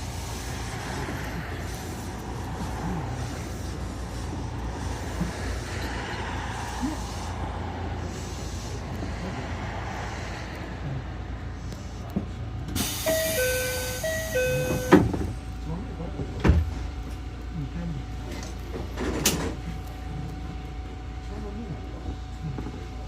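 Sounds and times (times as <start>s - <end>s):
train wheels rumbling: 0.0s - 23.0s
two-note chime: 13.1s - 15.0s.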